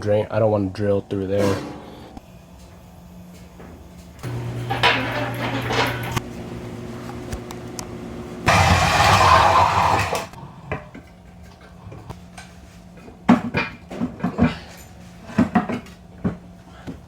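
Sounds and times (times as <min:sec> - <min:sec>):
loud rushing noise: 0:08.5 - 0:10.3.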